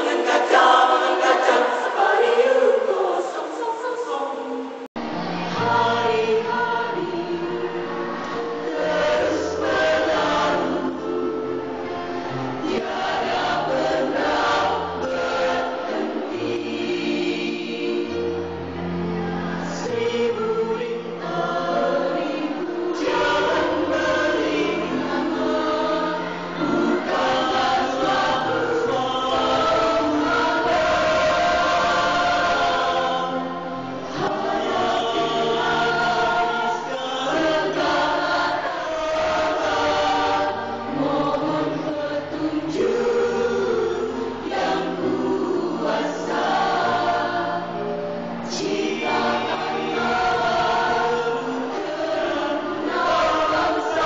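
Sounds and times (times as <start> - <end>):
mixed choir singing: 0.0 - 54.0.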